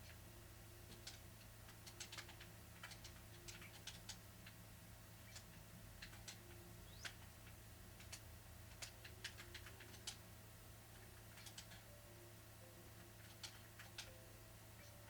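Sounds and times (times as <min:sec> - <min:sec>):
low steady hum: 0:00.0 - 0:15.0
faint sharp clicks: 0:05.3 - 0:06.4, 0:07.0 - 0:10.2, 0:13.2 - 0:14.2.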